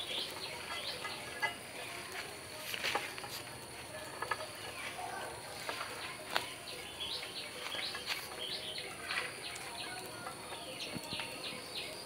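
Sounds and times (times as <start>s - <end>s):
small bird chirping: 0.0s - 2.0s, 4.3s - 12.0s.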